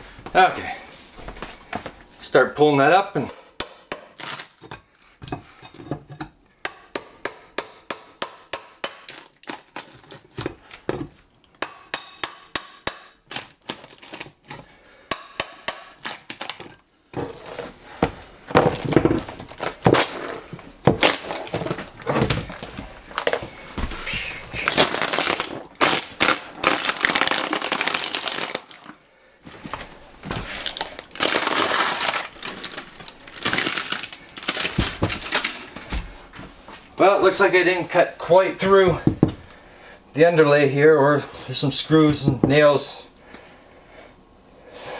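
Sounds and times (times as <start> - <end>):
flooring cracking and tearing: 9.0 - 11.2, 13.3 - 14.7, 16.0 - 29.0, 29.6 - 36.4
sharp knocks with metallic ring: 11.6 - 13.1.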